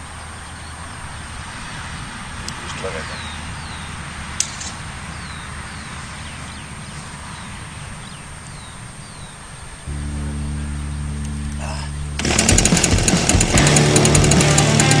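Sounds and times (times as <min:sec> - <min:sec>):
bird chirping: 0:01.8 - 0:04.0, 0:04.8 - 0:12.2
low steady rumble: 0:09.9 - 0:14.9.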